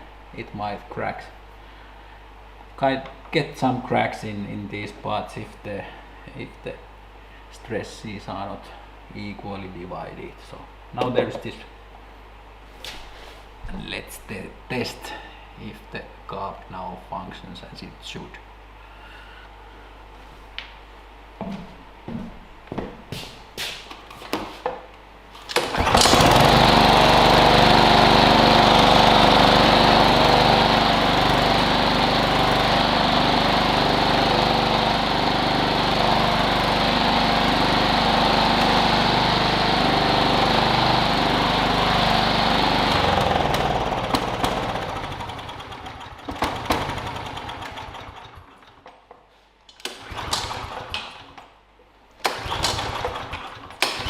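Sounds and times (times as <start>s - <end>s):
lawn mower engine running: 25.5s - 49.0s, 49.8s - 51.4s, 52.2s - 54.0s.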